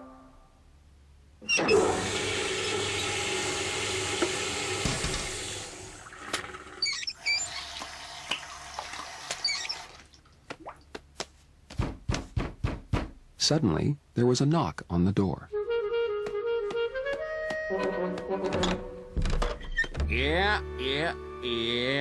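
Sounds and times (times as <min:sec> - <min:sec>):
toilet flushing: 0:01.5 - 0:10.1.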